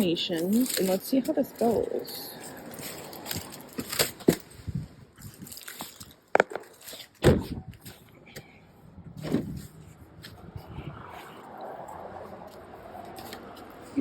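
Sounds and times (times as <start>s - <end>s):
handling noise: 0.0s - 8.6s.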